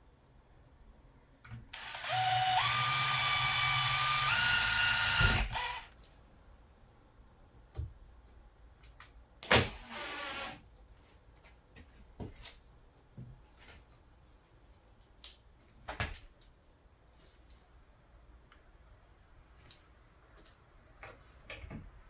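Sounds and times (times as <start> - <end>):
cordless drill running: 1.8 - 5.9, 9.6 - 10.6.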